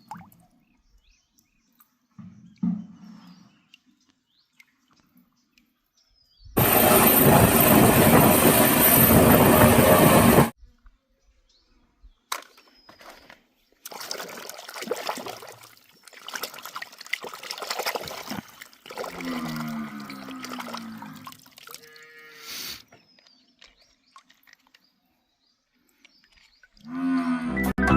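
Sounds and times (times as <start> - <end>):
water splashing and trickling: 0.0 - 2.6, 13.7 - 27.0
water running loudly: 6.6 - 10.5.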